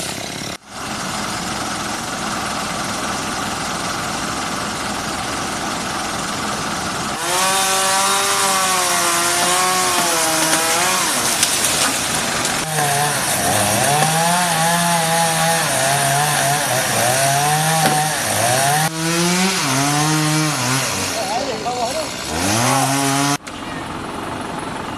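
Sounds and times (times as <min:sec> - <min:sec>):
chainsaw cutting wood: 0:07.2 - 0:23.4.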